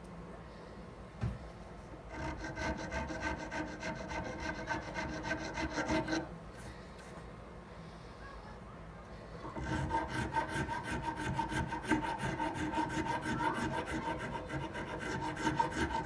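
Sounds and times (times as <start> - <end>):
hand file rasping on knife handle: 2.1 - 6.3, 9.5 - 16.0.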